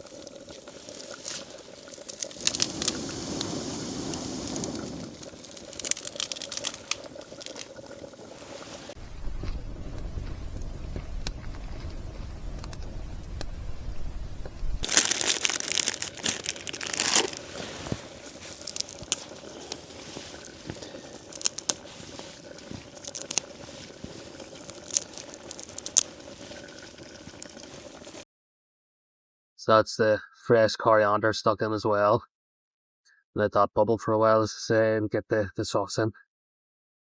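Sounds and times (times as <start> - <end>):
plastic packaging crinkling and tearing: 0.0 - 9.0, 14.8 - 28.2
small clicks and crackles: 0.0 - 13.6, 14.4 - 28.2
low rumble: 9.0 - 15.2.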